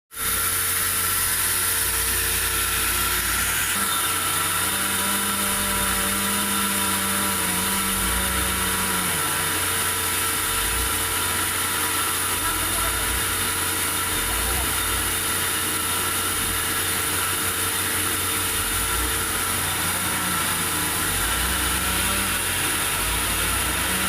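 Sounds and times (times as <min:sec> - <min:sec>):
sawmill machinery drone: 0:00.2 - 0:24.0
low hum: 0:07.4 - 0:24.0.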